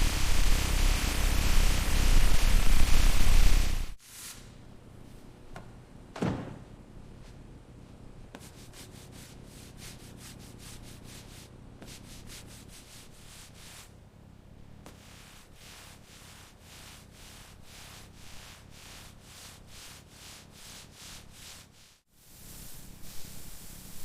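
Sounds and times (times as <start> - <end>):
sanding strokes: 8.4 - 13.9, 14.9 - 24.0.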